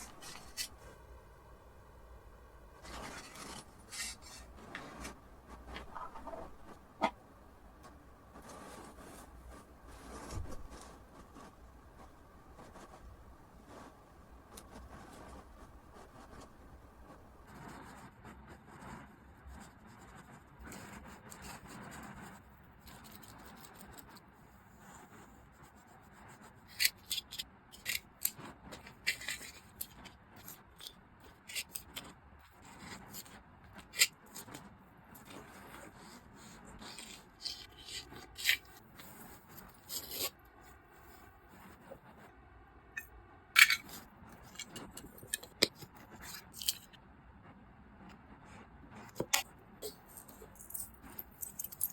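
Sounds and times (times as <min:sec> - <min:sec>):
packaging clicks taps and scrapes: 0:26.7 - 0:34.6, 0:36.8 - 0:40.4, 0:43.6 - 0:47.0.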